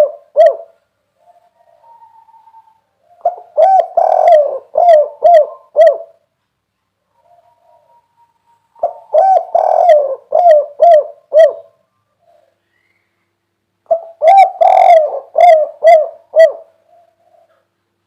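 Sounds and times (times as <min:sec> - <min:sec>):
dove cooing: 0:00.0 - 0:06.2, 0:07.1 - 0:12.6, 0:13.9 - 0:17.8.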